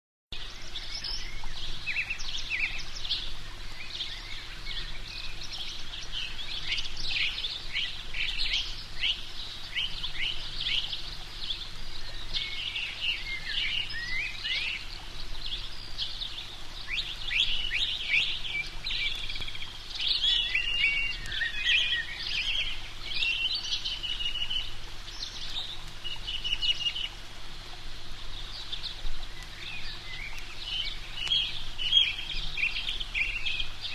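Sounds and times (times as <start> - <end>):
songbirds chirping: 0.3 - 33.9.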